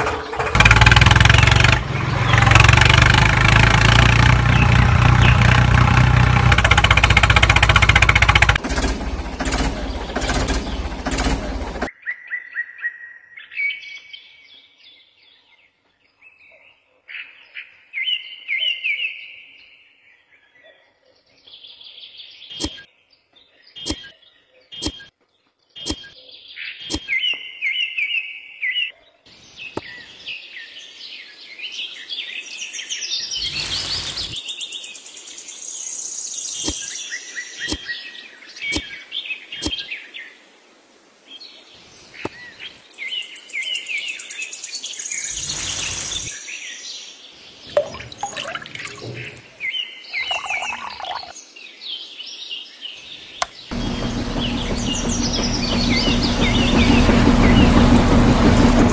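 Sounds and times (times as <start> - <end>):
small birds chirping: 21.1 - 28.6, 29.4 - 40.3, 41.4 - 58.8
loud burst of noise: 53.7 - 58.9.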